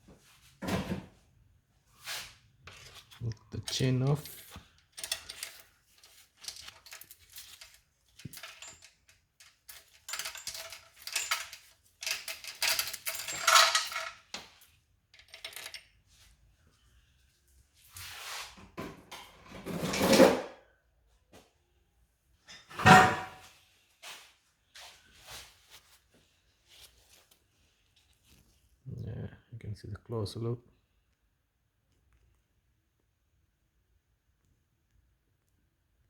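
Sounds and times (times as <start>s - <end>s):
scraping clatter: 2.7s - 14.2s
metal-on-metal clatter: 2.7s - 14.3s
timing chain clinking and rattling: 2.7s - 14.4s, 15.2s - 15.9s.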